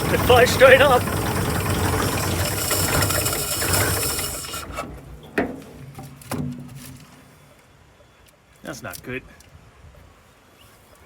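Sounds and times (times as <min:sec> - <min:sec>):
truck engine running: 0:00.0 - 0:05.2.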